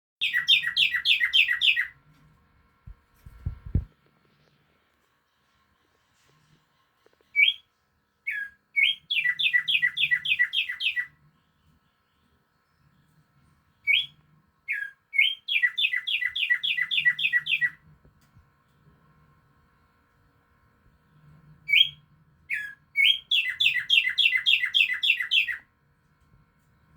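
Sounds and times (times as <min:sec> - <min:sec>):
songbird singing: 0:00.2 - 0:02.0, 0:07.2 - 0:11.2, 0:13.8 - 0:17.8, 0:21.7 - 0:25.6.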